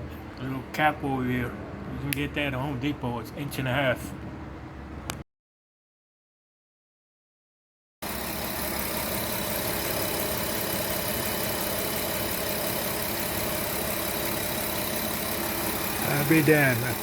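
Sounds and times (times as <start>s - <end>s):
car engine idling: 8.0s - 17.0s.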